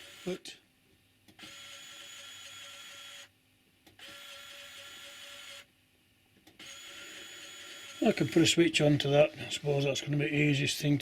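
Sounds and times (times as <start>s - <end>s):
small electric motor whirring: 0.0s - 0.4s, 1.4s - 3.3s, 4.0s - 5.7s, 6.6s - 8.4s.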